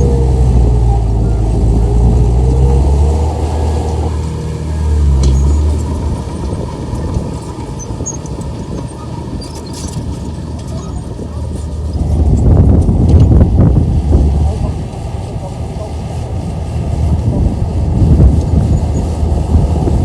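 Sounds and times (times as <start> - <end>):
bulldozer diesel engine drone: 0.0 - 20.0.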